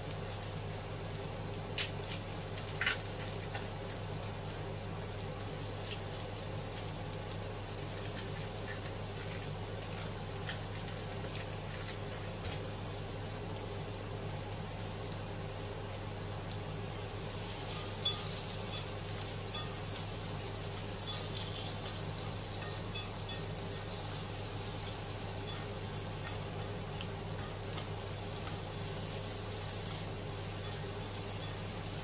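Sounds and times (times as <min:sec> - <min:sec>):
vegetables sizzling in oil: 0:00.0 - 0:32.0
chopsticks stirring in a pan: 0:07.8 - 0:12.7, 0:17.1 - 0:32.0.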